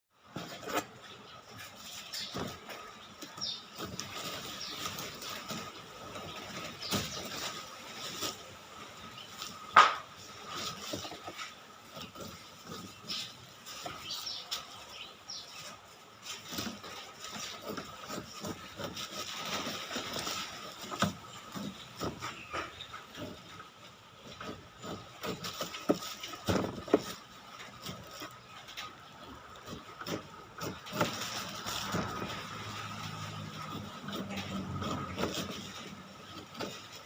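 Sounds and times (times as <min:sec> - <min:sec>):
sharp knock: 0:09.8 - 0:10.0
knife cutting pineapple rind: 0:16.2 - 0:37.0.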